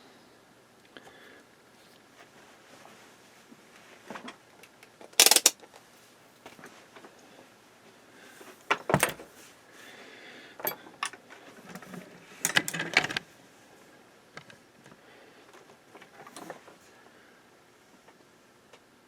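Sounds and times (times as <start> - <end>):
tools clattering on workbench: 5.2 - 5.5.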